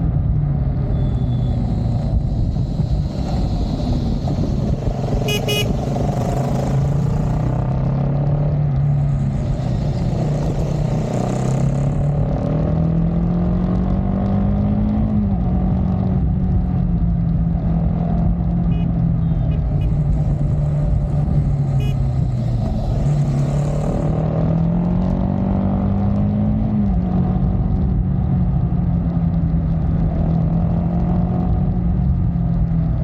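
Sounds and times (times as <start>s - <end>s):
motorcycle engine and exhaust: 0.0s - 33.0s
short vehicle horn toot: 0.9s - 1.6s, 5.2s - 5.8s, 21.8s - 22.0s.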